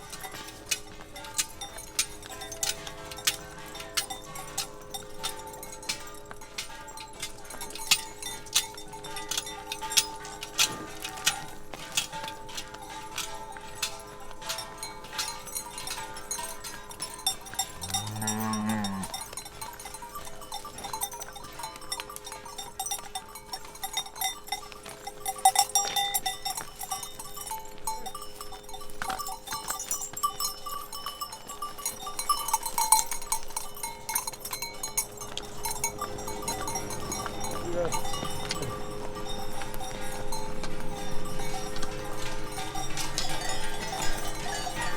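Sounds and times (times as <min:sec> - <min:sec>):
cowbells clanking: 0:00.0 - 0:44.9
cow mooing: 0:17.6 - 0:19.3.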